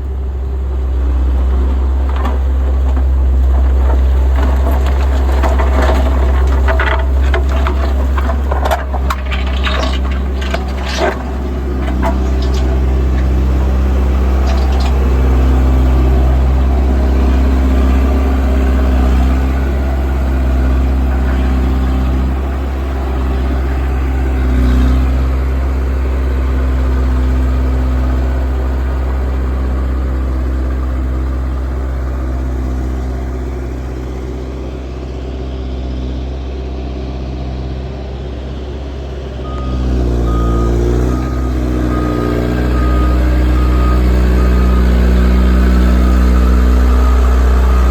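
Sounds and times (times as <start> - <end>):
road roller diesel engine: 0.0 - 47.9
clicks and knocks: 2.1 - 15.8.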